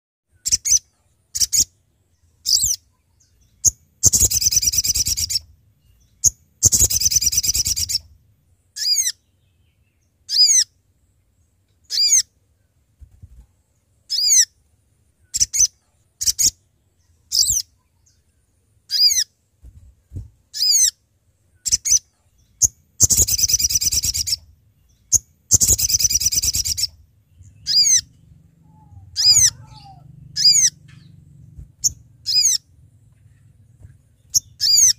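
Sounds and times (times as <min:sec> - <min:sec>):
bird rattling trills: 0:25.1 - 0:26.9
bird high call notes: 0:25.1 - 0:31.1.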